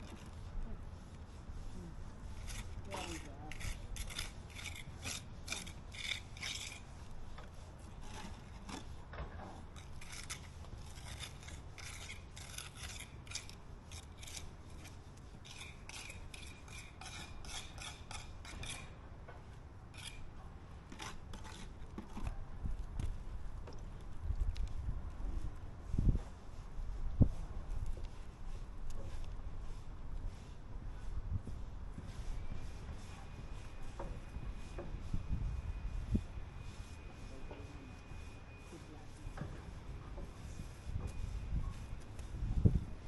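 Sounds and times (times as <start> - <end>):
hand tool rasping a surface: 2.3 - 7.0, 9.8 - 18.9, 20.0 - 20.2, 20.9 - 22.2.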